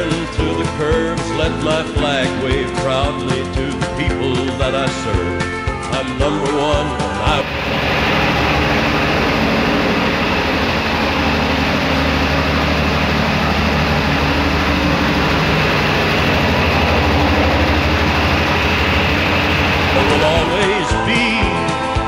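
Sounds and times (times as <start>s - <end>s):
motorcycle engine running: 7.3s - 20.9s.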